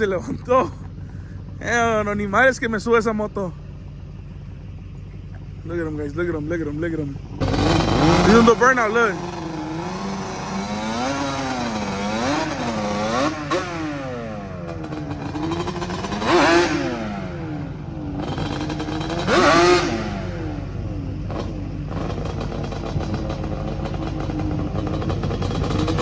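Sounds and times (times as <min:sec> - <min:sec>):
motorcycle engine revving hard: 0:07.2 - 0:26.0.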